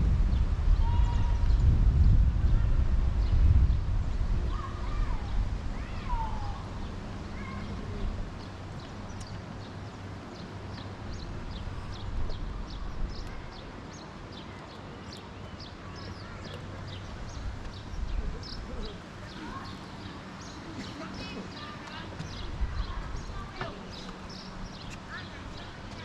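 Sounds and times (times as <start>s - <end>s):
steady low rumble: 0.0s - 13.9s, 15.8s - 26.0s
birds chirping: 0.3s - 26.0s.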